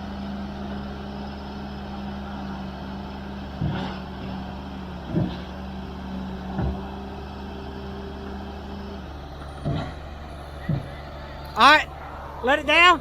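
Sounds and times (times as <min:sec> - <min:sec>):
heavy diesel engine running: 0:00.0 - 0:13.0
short knocks: 0:06.5 - 0:07.0, 0:09.4 - 0:11.6.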